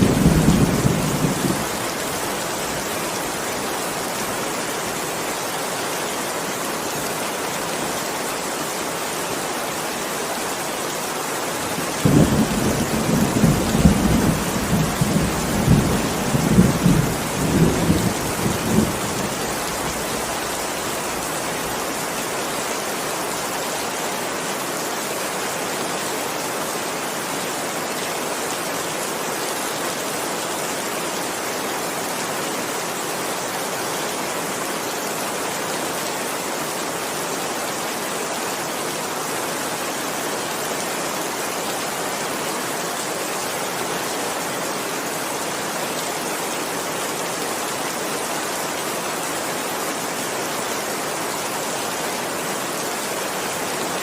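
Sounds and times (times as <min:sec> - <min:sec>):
heavy rain hissing: 0:00.0 - 0:35.9.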